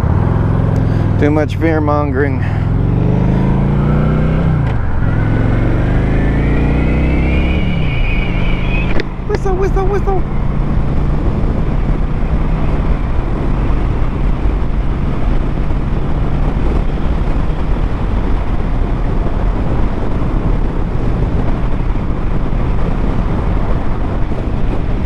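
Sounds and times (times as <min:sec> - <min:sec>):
wind rush on microphone: 0:00.0 - 0:25.0
motorcycle engine running: 0:10.0 - 0:25.0.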